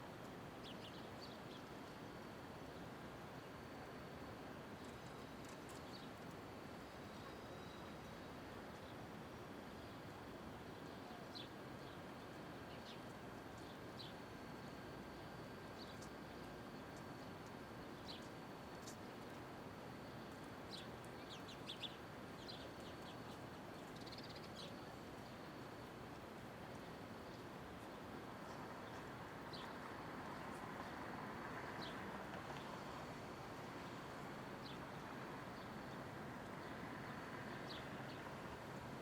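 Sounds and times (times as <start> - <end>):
distant traffic hum: 24.2 - 39.0.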